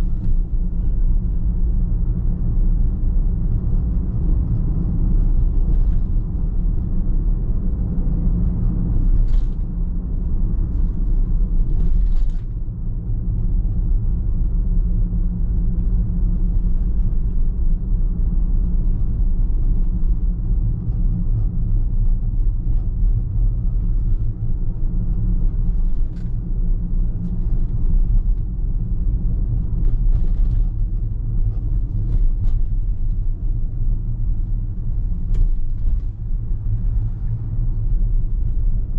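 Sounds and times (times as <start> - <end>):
car driving on road: 0.0 - 38.9.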